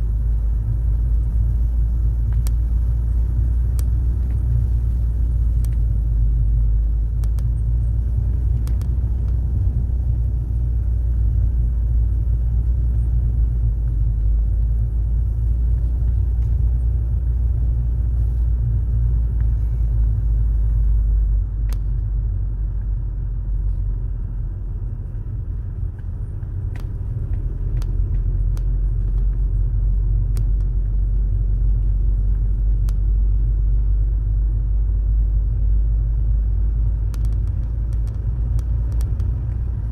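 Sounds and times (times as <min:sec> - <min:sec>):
car engine and tyres rumbling: 0:00.0 - 0:39.9
faint clicks and knocks: 0:37.0 - 0:39.9.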